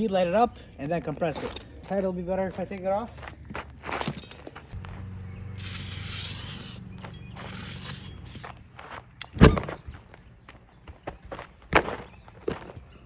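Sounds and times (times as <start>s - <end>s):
steady low hum: 3.1s - 13.0s
aerosol spray hissing: 5.6s - 8.5s.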